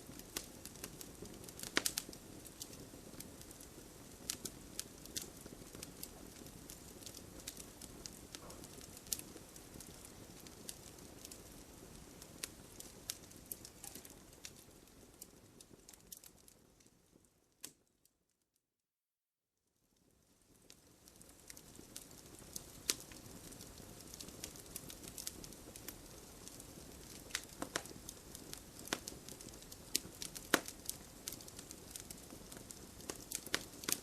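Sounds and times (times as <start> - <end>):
campfire crackling: 0.0 - 17.9, 20.4 - 34.0.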